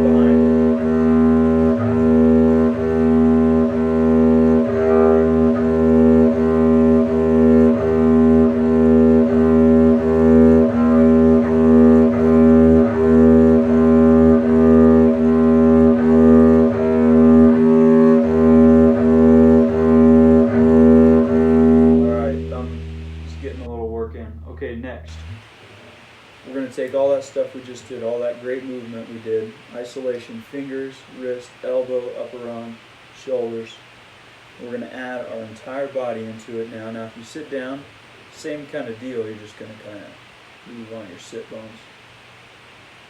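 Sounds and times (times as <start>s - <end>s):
double bass bowed on low note: 0.0s - 25.9s.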